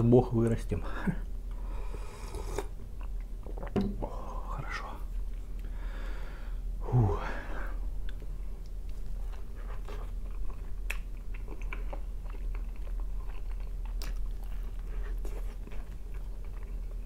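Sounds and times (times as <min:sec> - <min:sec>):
low steady hum: 0:00.0 - 0:17.0
man chewing food: 0:01.4 - 0:03.8, 0:07.8 - 0:17.0.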